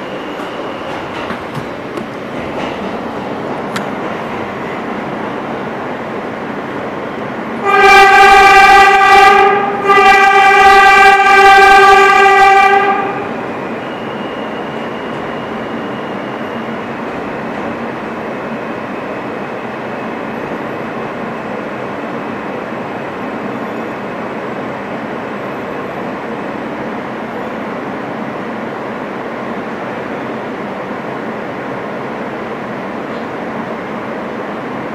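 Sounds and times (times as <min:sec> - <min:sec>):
train rumbling through tunnel: 0:00.0 - 0:34.9
subway train horn blasts: 0:07.5 - 0:16.8.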